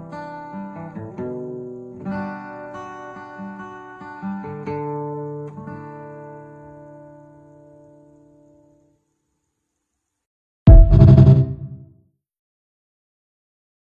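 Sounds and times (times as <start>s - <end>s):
acoustic guitar picking chords: 10.7s - 11.8s.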